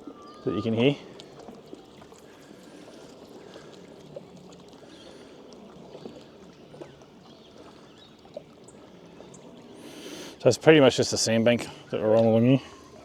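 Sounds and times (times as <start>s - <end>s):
river water lapping: 0.0s - 13.0s.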